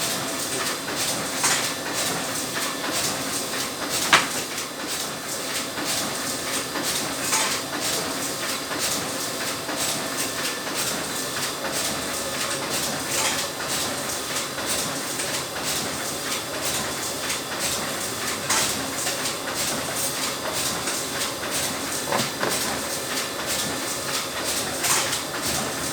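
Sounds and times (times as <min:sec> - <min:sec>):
laminating machine hissing: 0:17.8 - 0:24.4.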